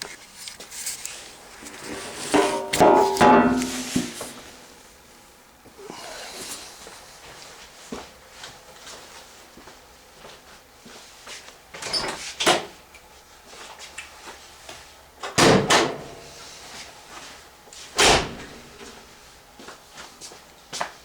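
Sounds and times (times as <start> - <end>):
loud clunks: 2.3 - 4.5.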